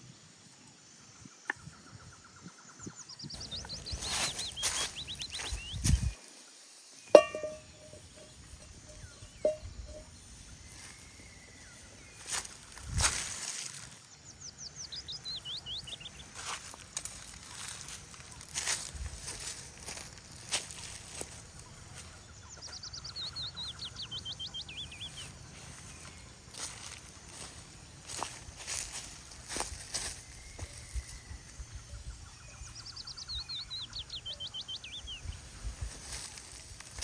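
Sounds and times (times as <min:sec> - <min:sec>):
rustling footsteps: 0:03.4 - 0:06.3, 0:07.2 - 0:14.1, 0:15.3 - 0:23.8, 0:24.6 - 0:31.6, 0:35.3 - 0:37.0
sharp ringing clink: 0:07.2 - 0:10.2.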